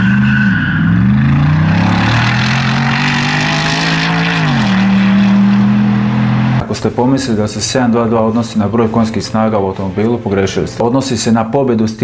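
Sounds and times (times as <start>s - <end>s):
car engine accelerating hard: 0.0s - 6.6s.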